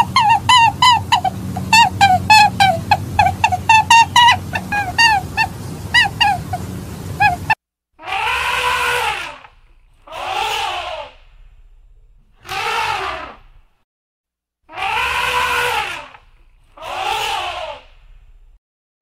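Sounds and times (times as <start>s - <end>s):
short chirping animal calls: 0.0s - 11.2s
long drawn-out animal calls: 0.0s - 11.3s, 12.4s - 13.6s, 14.7s - 18.2s.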